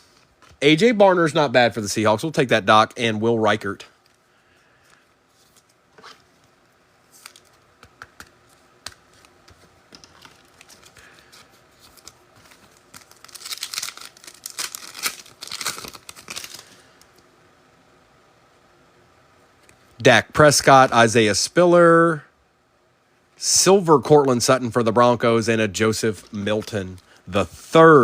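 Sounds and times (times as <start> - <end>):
wrapper tearing and crinkling: 11.8 - 16.9.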